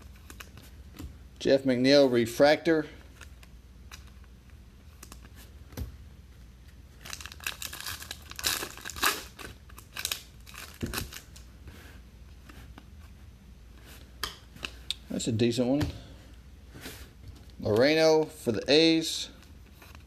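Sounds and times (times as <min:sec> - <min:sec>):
foil wrapper crinkling and tearing: 0:07.0 - 0:11.4.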